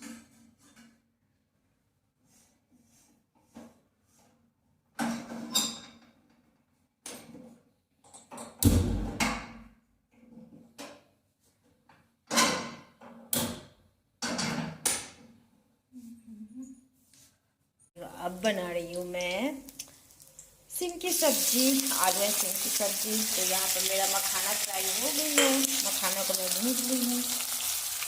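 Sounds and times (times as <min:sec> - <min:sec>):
utensils and dishes clattering: 0:22.0 - 0:26.4.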